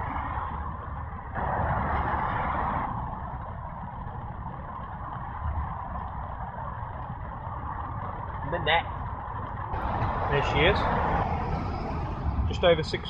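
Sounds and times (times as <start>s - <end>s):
road traffic rumble: 0.0s - 13.0s
vehicle passing: 5.1s - 13.0s.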